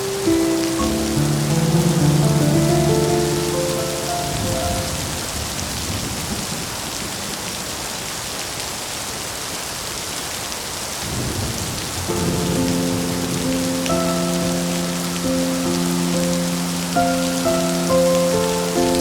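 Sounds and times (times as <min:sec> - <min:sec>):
heavy rain hissing: 0:00.0 - 0:19.0
thunder rumble: 0:00.8 - 0:07.1.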